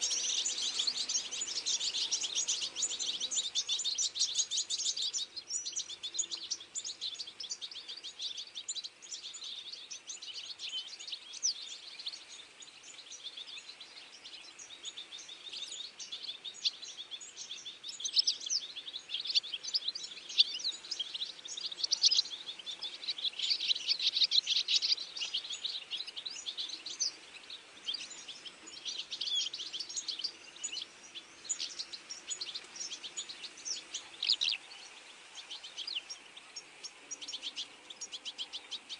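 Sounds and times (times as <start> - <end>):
small birds chirping and singing: 0.0 - 38.9.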